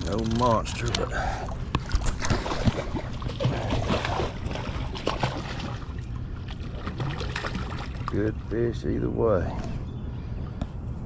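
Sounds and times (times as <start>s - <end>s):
water splashing and dripping: 1.7s - 8.4s.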